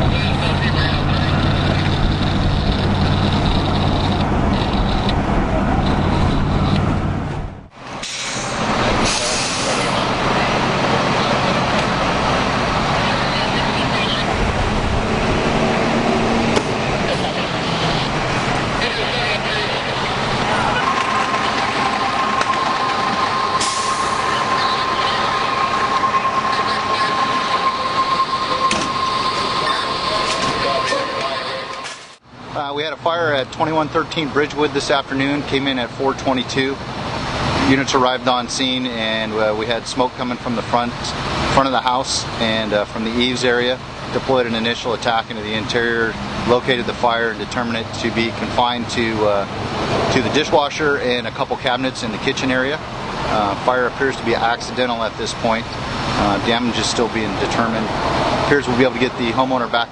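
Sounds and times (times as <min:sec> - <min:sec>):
fire engine diesel engine: 0:00.0 - 0:59.9
high-pitched whine: 0:18.8 - 0:32.2.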